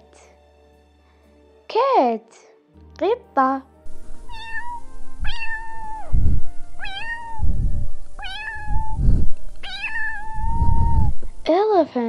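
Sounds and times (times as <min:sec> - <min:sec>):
low rumbling sounds: 0:03.9 - 0:11.5
cat meowing: 0:04.1 - 0:11.2.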